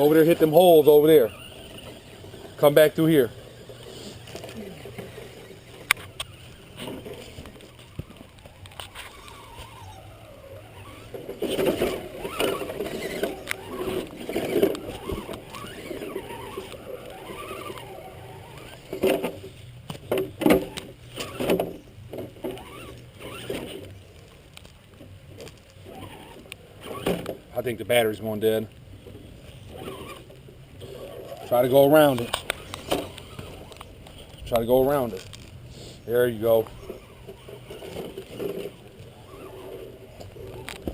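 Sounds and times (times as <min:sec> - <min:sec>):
electric motor whining: 0:00.0 - 0:24.1, 0:29.1 - 0:40.9
toy truck knocks and rattles: 0:10.8 - 0:23.9.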